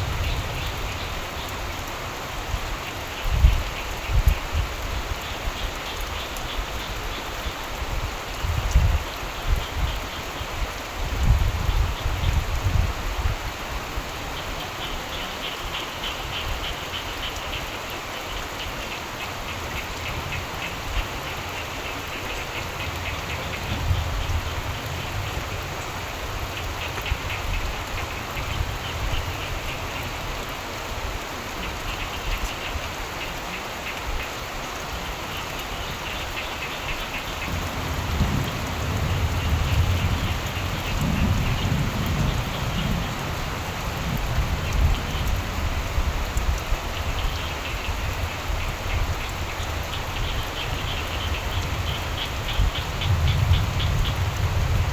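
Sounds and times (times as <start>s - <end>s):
low rumble of thunder: 0.0s - 1.5s, 22.8s - 29.7s, 37.3s - 49.3s, 50.2s - 54.9s
steady rain falling: 0.0s - 54.9s
frogs calling in pulsed trills: 47.1s - 54.5s.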